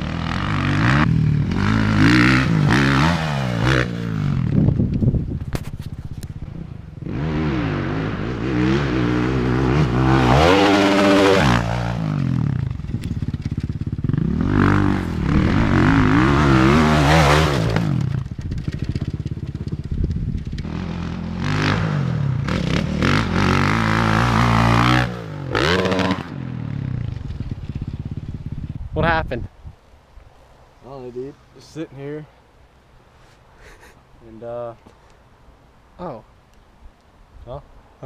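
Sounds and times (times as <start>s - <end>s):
dirt bike engine revving: 0.0s - 4.8s, 7.0s - 28.6s.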